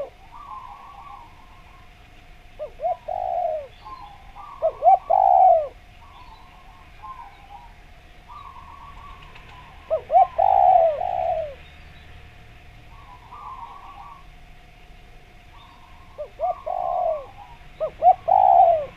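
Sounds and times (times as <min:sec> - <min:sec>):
dove cooing: 0:00.0 - 0:11.6, 0:12.8 - 0:14.5, 0:15.2 - 0:18.9
birds chirping: 0:00.0 - 0:18.9
thin steady hum: 0:00.0 - 0:18.9.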